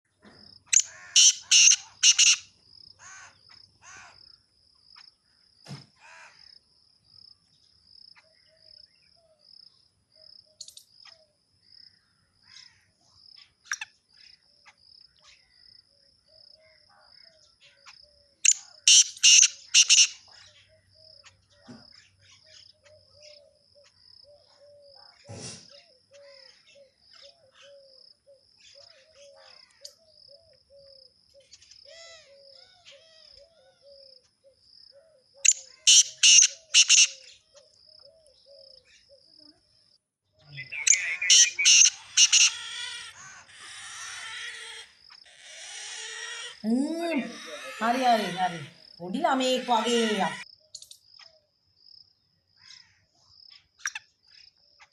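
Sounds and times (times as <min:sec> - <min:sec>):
parrots screeching: 0:00.8 - 0:02.4, 0:18.9 - 0:20.2, 0:35.8 - 0:37.3, 0:40.7 - 0:48.8, 0:49.4 - 0:50.4
high pulsing chirp: 0:40.4 - 0:42.5.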